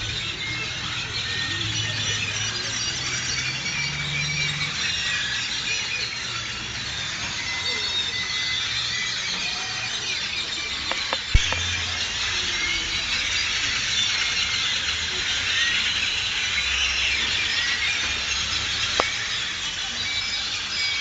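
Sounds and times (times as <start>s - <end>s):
birds chirping in chorus: 0.0s - 21.0s.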